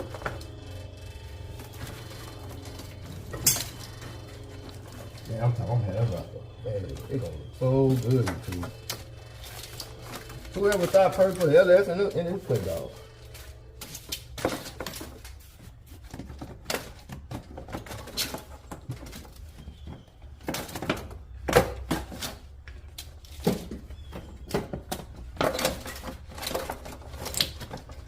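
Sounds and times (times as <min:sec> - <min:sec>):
low steady hum: 0:00.0 - 0:24.7
tools clicking and knocking: 0:01.8 - 0:05.3.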